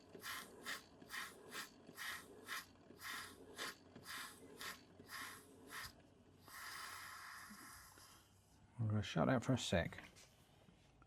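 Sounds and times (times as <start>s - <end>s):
steam engine chuffing: 0.1s - 7.5s
steady hiss of steam: 2.0s - 8.2s.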